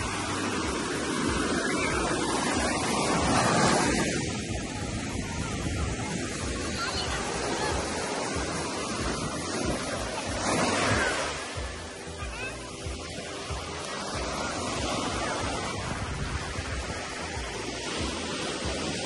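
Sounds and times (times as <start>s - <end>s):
wind rumbling on microphone: 0.0s - 11.1s, 15.1s - 19.0s
surf breaking on beach: 0.0s - 19.0s.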